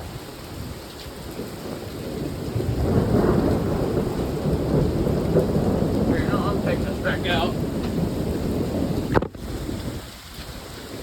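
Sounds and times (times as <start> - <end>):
steady rain: 0.0 - 11.0
thunder rumbling: 0.0 - 11.0.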